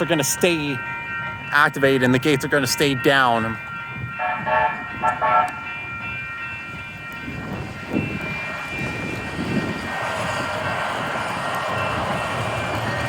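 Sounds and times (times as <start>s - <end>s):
crossing warning bells ringing: 0.0s - 13.0s
train wheels on rails: 0.0s - 13.0s
wind rumbling on microphone: 3.6s - 13.0s.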